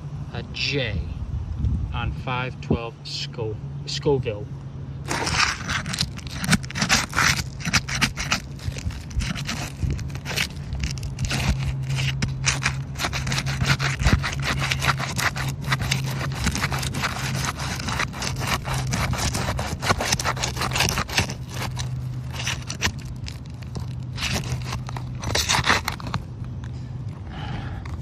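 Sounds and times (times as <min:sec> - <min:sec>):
steady low hum: 0:00.0 - 0:28.0
shingles scraping and crackling: 0:05.0 - 0:26.3.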